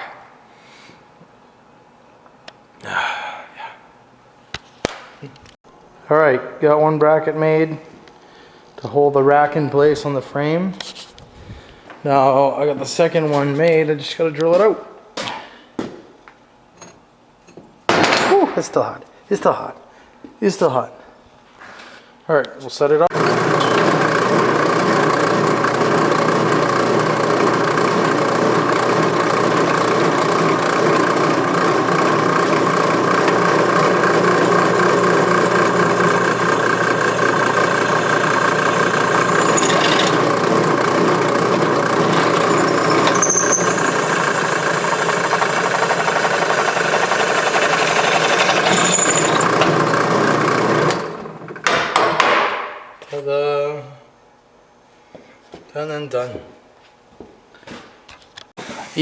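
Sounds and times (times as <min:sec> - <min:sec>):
power drill boring through steel: 0:23.1 - 0:51.2.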